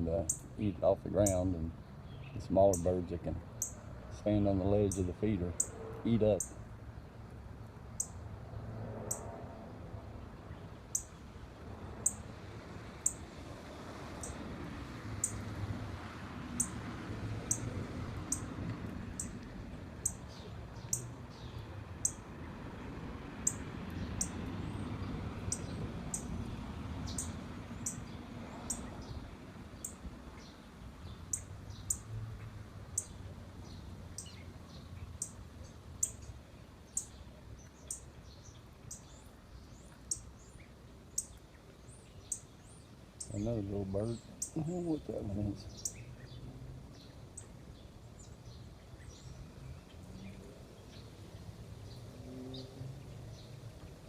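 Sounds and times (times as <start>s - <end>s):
songbird chip notes: 0.0s - 6.6s, 43.2s - 46.4s
birds chirping: 0.0s - 7.2s, 7.9s - 8.2s, 10.4s - 11.3s, 16.6s - 16.8s, 18.3s - 18.5s, 20.0s - 22.5s, 23.4s - 32.0s, 32.9s - 51.1s.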